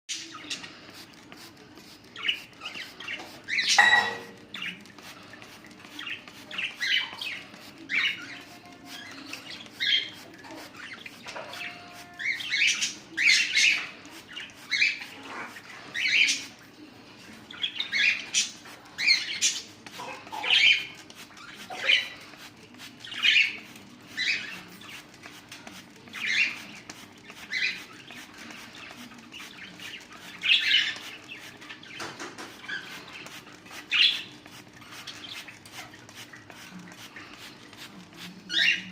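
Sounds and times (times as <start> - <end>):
cockatiels calling: 5.9 - 16.5, 17.5 - 22.4, 26.1 - 36.7, 38.5 - 38.9.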